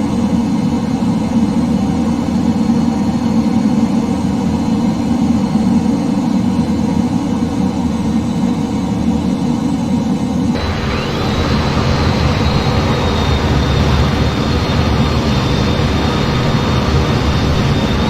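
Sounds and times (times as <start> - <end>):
engine drone: 10.6 - 18.0.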